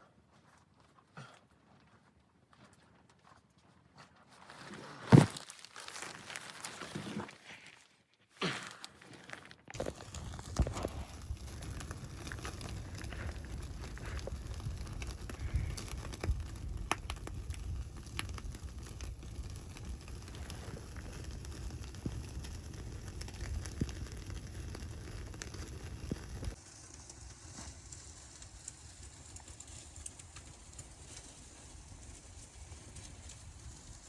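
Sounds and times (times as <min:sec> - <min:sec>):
wood fire crackling and popping: 0:08.4 - 0:34.0.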